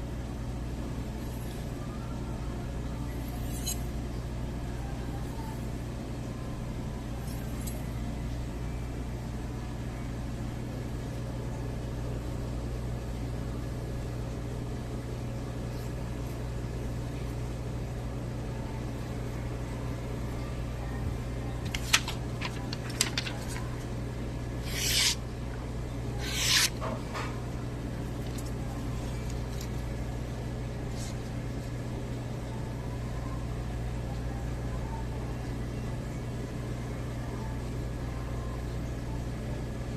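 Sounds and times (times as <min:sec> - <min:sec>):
low electrical hum: 0:00.0 - 0:39.9
knife blade scraping on whetstone: 0:03.4 - 0:03.9, 0:24.6 - 0:25.2, 0:26.2 - 0:26.8.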